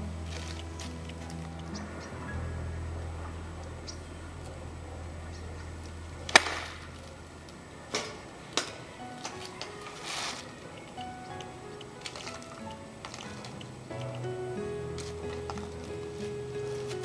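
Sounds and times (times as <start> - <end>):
golf club striking ball: 6.3 - 6.9.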